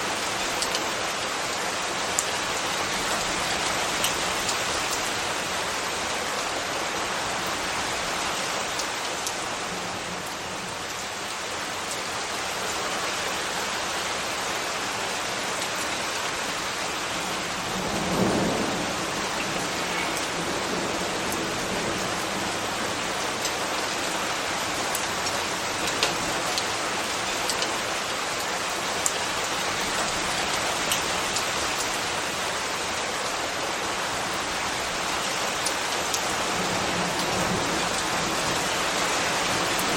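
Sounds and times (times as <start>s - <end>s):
steady rain falling: 0.0s - 39.9s
raindrop clicks: 24.9s - 26.7s, 27.5s - 27.8s.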